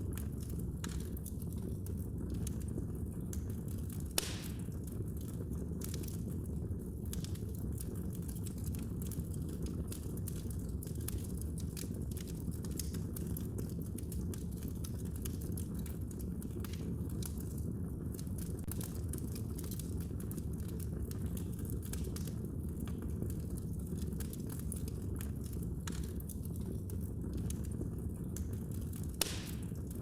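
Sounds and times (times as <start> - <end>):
fire crackling and popping: 0.0 - 30.0
fire rumbling: 0.0 - 30.0.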